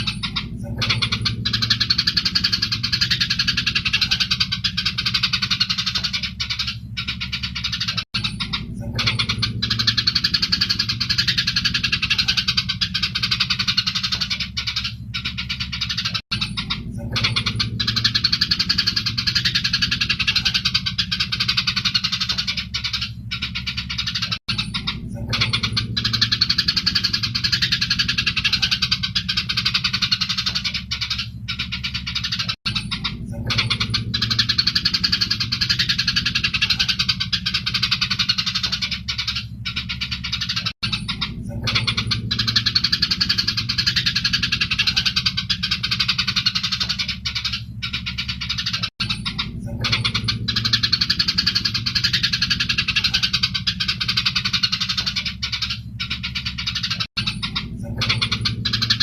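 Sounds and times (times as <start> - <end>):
sparrows chirping: 0.0 - 59.0
steady low hum: 0.0 - 59.0.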